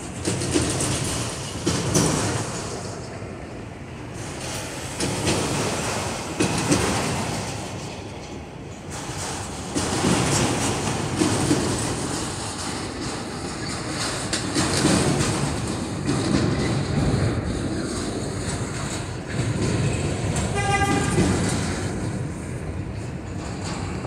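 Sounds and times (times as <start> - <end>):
freight train wheels rumbling: 0.0 - 24.0
train horn toot: 20.5 - 21.5.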